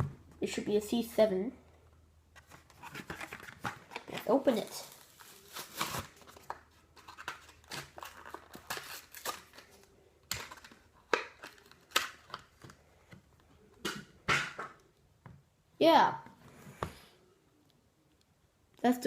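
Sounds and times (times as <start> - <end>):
blister package crinkling and snapping: 2.8 - 12.8.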